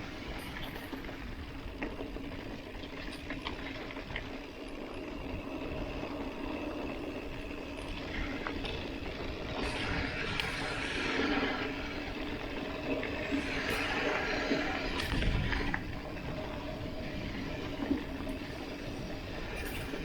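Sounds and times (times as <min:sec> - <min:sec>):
bike tyres rolling on dirt: 0:00.0 - 0:20.0
small clicks and rattles: 0:00.2 - 0:10.9.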